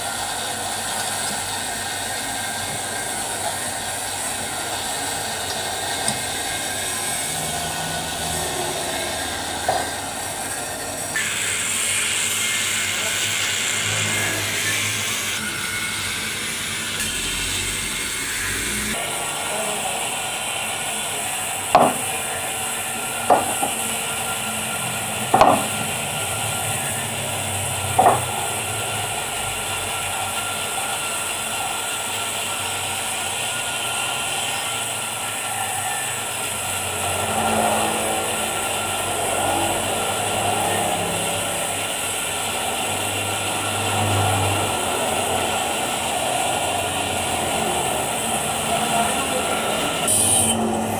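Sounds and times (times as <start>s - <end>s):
workshop machine hum: 0.0s - 50.9s
metal-on-metal knocks: 21.8s - 22.0s, 23.3s - 23.8s, 25.3s - 25.8s, 28.0s - 28.3s.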